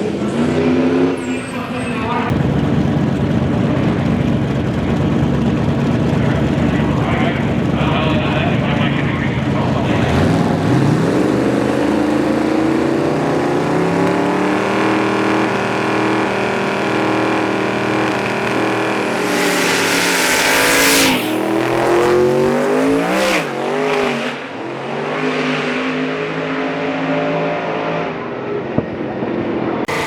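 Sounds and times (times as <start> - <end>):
drag racing car engine revving: 0.0 - 28.6, 29.4 - 30.0
loud rushing burst of noise: 16.4 - 23.8.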